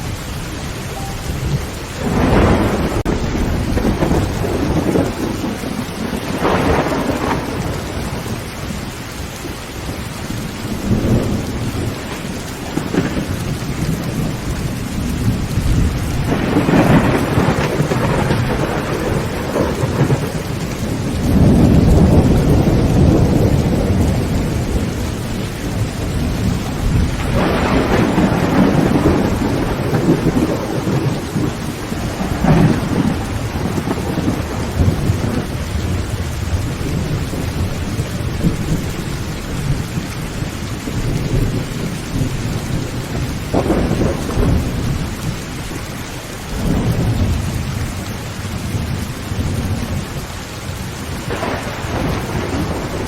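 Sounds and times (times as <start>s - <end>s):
heavy rain on a tin roof: 0.0s - 53.0s
rolling thunder: 0.0s - 53.0s
sharp thunder crack: 1.0s - 8.4s, 15.2s - 38.8s, 43.5s - 45.1s, 51.3s - 53.0s.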